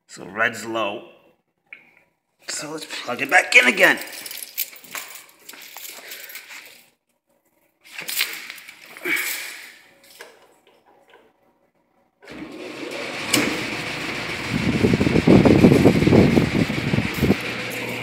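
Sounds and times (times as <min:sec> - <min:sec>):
handling clatter: 0:03.2 - 0:06.9, 0:07.9 - 0:10.4
fan rushing air: 0:12.3 - 0:18.0
low buffeting flutter: 0:13.7 - 0:17.5.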